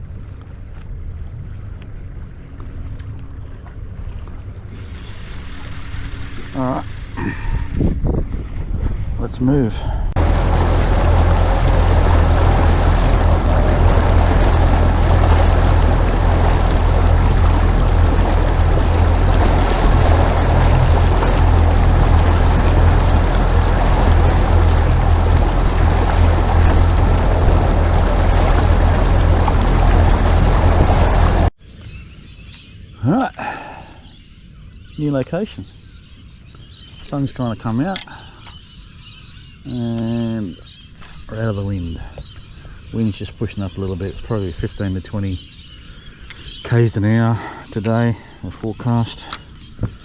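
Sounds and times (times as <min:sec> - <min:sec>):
wind and water rushing: 0:00.0 - 0:31.6
outboard motor running: 0:01.1 - 0:08.6, 0:09.7 - 0:31.5, 0:39.7 - 0:42.9, 0:47.4 - 0:50.0.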